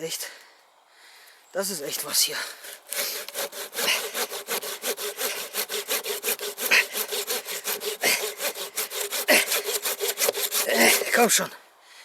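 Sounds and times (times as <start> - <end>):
hand saw cutting wood: 2.6 - 11.5.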